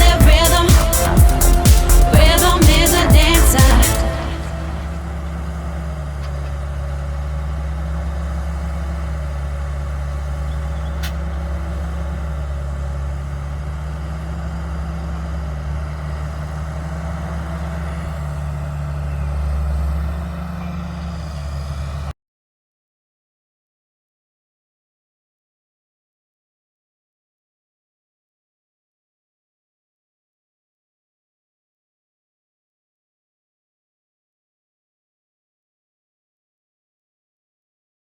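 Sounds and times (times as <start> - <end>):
tractor diesel engine running: 0.0 - 22.1.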